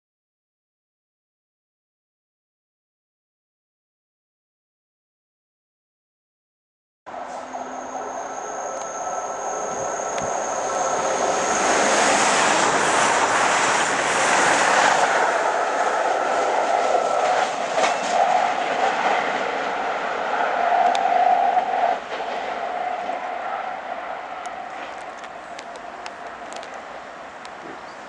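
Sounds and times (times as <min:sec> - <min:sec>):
train wheels rushing: 0:07.1 - 0:28.0.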